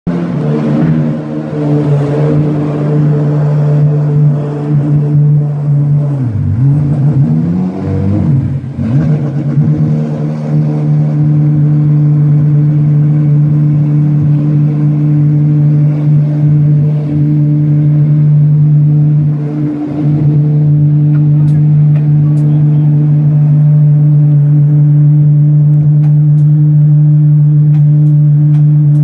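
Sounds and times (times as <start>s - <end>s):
sports car engine revving: 0.1s - 29.0s.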